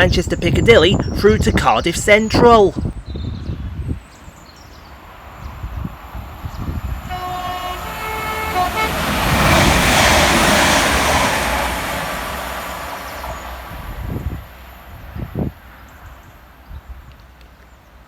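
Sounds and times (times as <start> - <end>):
train passing: 4.8 - 18.0
train horn: 7.0 - 12.2.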